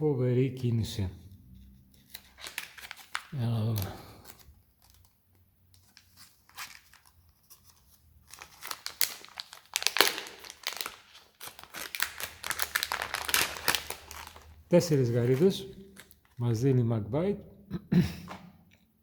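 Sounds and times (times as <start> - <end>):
plastic packaging crinkling and tearing: 2.0 - 16.4.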